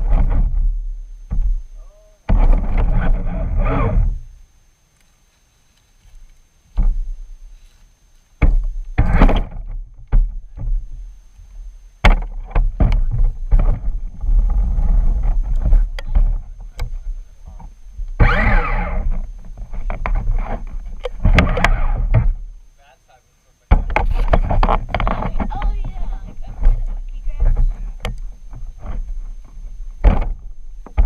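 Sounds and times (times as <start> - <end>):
knocks and rattles over ground: 0.0 - 4.4, 5.7 - 22.6, 23.7 - 31.0
low rumble on microphone: 0.0 - 4.5, 8.4 - 22.8, 23.7 - 31.0
toy truck motor and drivetrain: 18.2 - 19.1.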